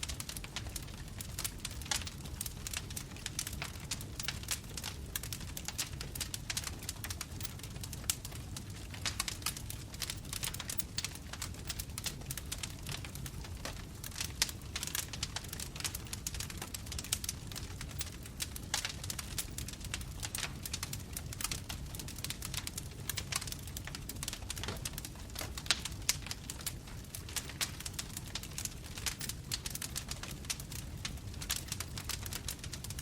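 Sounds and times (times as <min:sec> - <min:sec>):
bonfire crackling: 0:00.0 - 0:33.0.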